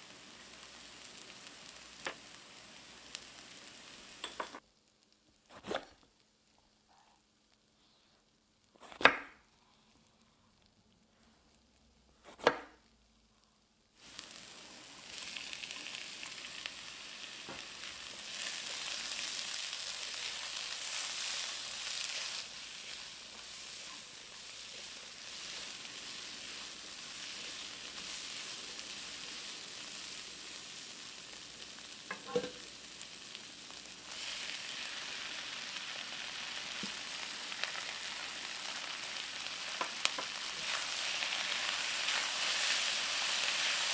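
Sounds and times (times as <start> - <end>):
food sizzling in hot oil: 0.0 - 4.6, 14.0 - 43.9.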